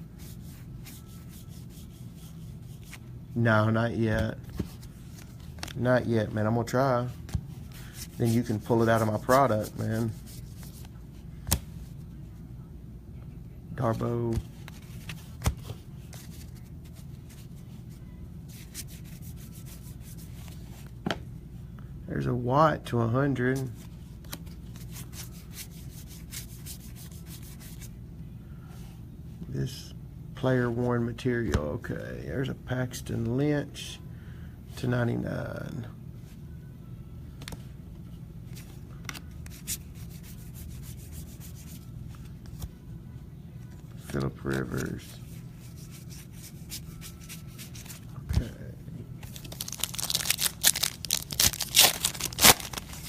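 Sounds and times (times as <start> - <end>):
steady low hum: 0.0 - 53.0
trading cards sliding and rubbing: 0.1 - 3.1, 7.0 - 12.0, 13.8 - 21.0, 23.5 - 28.0, 38.5 - 42.8, 43.7 - 48.6
cards flipped by hand: 4.4 - 5.8, 7.2 - 11.8, 24.2 - 27.8, 38.5 - 40.4.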